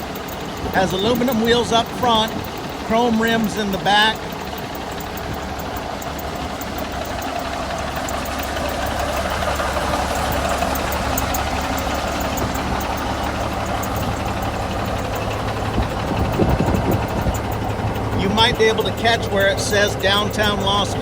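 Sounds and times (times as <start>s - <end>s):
diesel truck engine idling: 0.0s - 21.0s.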